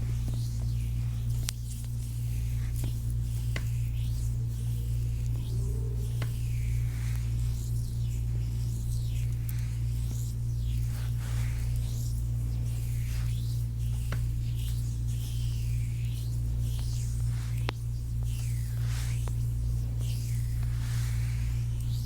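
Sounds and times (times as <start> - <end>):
hands rubbing skin: 0.0 - 22.0
low hum: 3.8 - 8.7.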